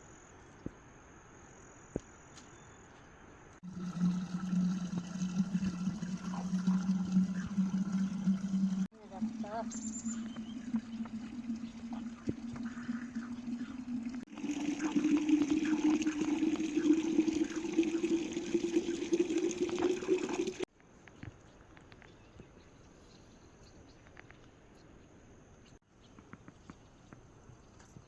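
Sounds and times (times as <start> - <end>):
running water splashing: 3.6 - 20.7.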